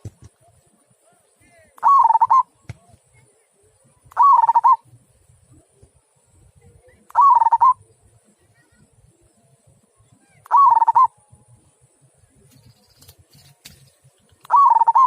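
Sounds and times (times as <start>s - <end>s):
dove cooing: 1.8s - 2.5s, 4.2s - 4.8s, 7.2s - 7.8s, 10.5s - 11.1s, 14.5s - 15.0s.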